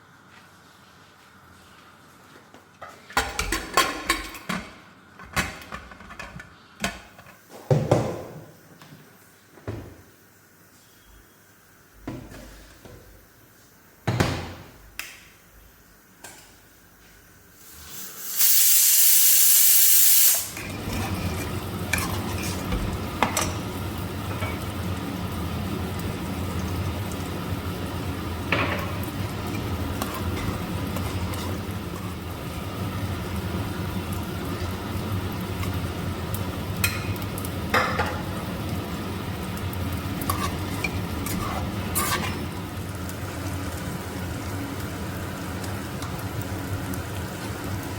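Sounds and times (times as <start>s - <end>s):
food sizzling in a pan: 17.5s - 47.9s
loud hiss: 17.6s - 20.6s.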